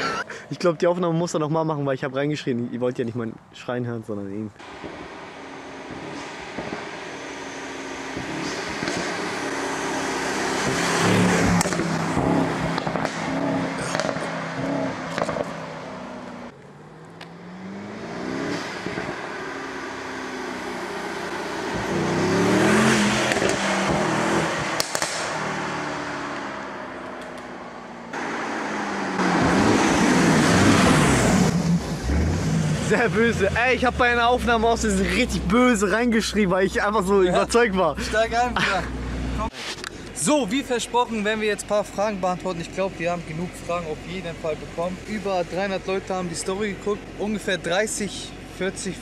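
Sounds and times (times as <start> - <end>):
car engine accelerating past: 4.6 - 35.6.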